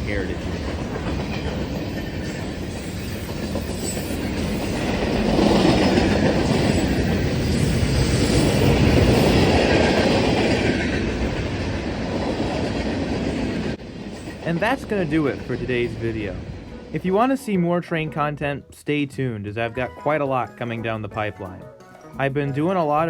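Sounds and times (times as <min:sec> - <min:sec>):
train wheels rolling on rails: 0:00.0 - 0:17.4.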